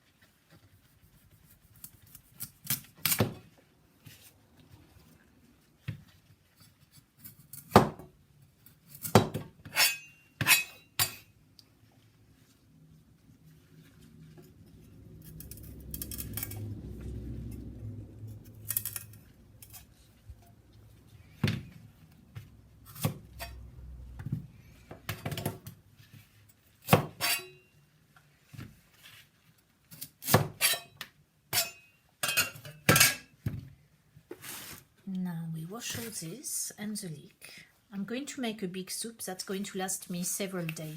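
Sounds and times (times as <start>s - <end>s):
low rumble: 13.0s - 24.8s
dishes and cutlery clinking: 30.6s - 33.3s.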